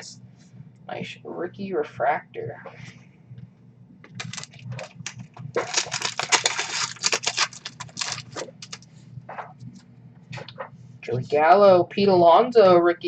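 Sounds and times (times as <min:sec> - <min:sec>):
wrapper crinkling and tearing: 0:04.2 - 0:08.8.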